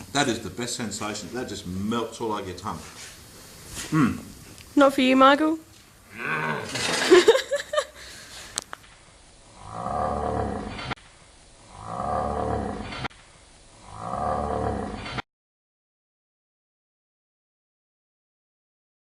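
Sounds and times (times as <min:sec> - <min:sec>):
growling roar: 0:06.1 - 0:07.1, 0:09.5 - 0:11.0, 0:11.7 - 0:13.1, 0:13.8 - 0:15.2.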